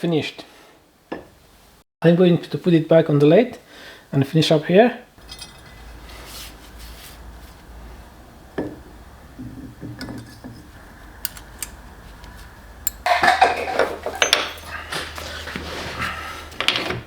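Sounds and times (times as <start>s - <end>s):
metal tools clinking: 5.2s - 6.0s, 12.8s - 15.5s.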